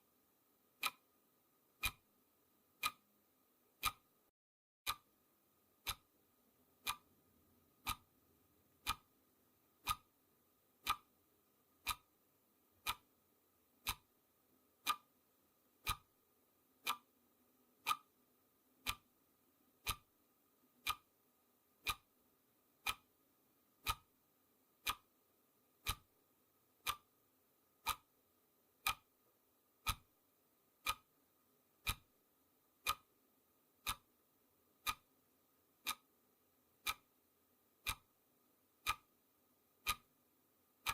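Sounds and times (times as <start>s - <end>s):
clock ticking: 0.8s - 1.1s, 1.7s - 2.1s, 2.7s - 3.1s, 3.7s - 4.2s, 4.9s - 7.1s, 7.7s - 10.2s, 10.8s - 11.2s, 11.8s - 12.2s, 12.8s - 16.2s, 16.8s - 18.2s, 18.8s - 19.2s, 19.8s - 24.2s, 24.8s - 26.2s, 26.8s - 28.2s, 28.8s - 29.2s, 29.8s - 30.2s, 30.8s - 31.2s, 31.8s - 33.2s, 33.8s - 34.2s, 34.8s - 40.9s.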